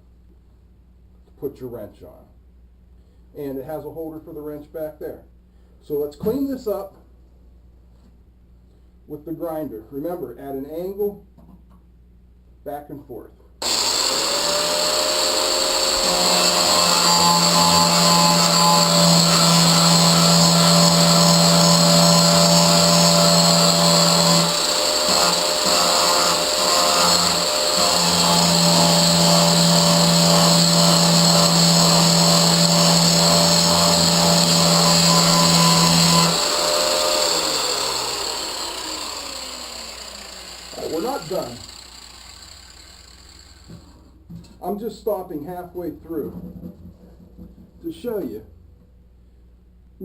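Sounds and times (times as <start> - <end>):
angle grinder grinding steel: 13.6 - 43.8.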